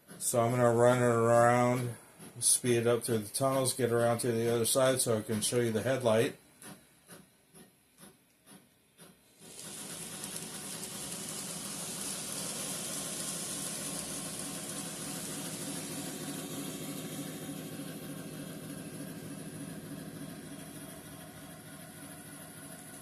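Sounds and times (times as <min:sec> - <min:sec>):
model locomotive clicking: 0:00.1 - 0:23.0
model locomotive motor whirring: 0:07.1 - 0:23.0.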